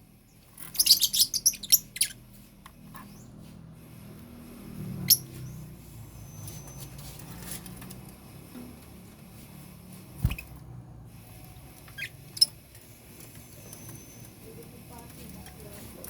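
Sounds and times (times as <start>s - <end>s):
lovebirds chirping: 0.2s - 3.4s, 4.9s - 7.2s, 11.2s - 15.7s.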